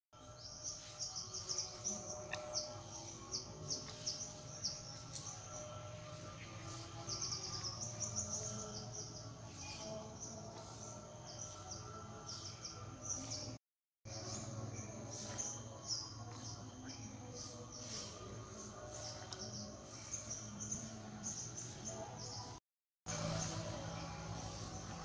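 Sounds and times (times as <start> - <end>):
small birds chirping: 0.2 - 25.0
faint steady drone: 23.1 - 25.0.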